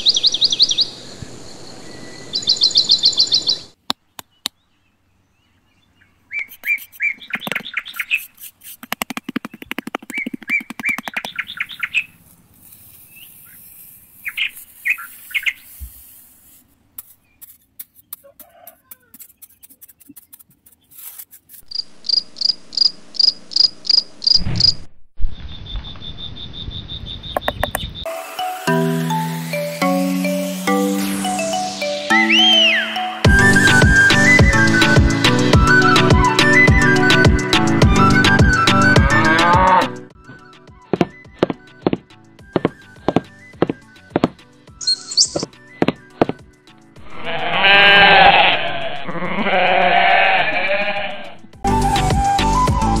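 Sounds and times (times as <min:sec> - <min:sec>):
small birds chirping: 0:00.0 - 0:24.8, 0:25.4 - 0:28.1, 0:40.8 - 0:46.7.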